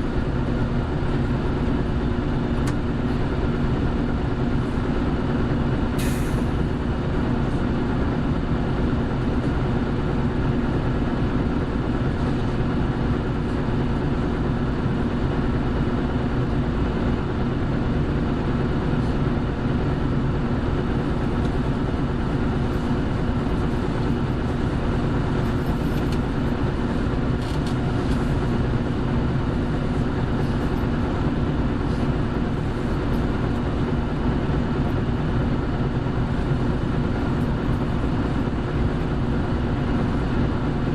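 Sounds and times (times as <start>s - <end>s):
bus engine running steadily: 0.0s - 40.9s.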